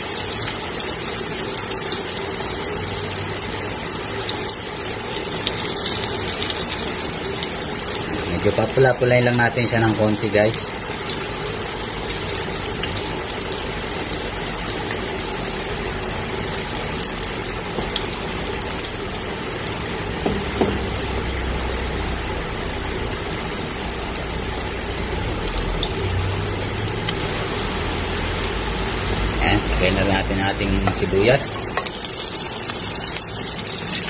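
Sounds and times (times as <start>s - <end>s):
ginger sizzling in hot oil: 0.0s - 34.0s
spatula knocking on pot: 20.2s - 21.0s.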